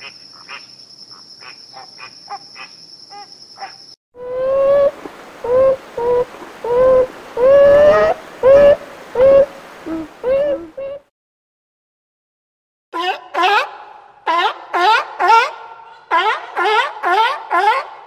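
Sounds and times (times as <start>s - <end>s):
nutria calling: 0.0s - 11.0s.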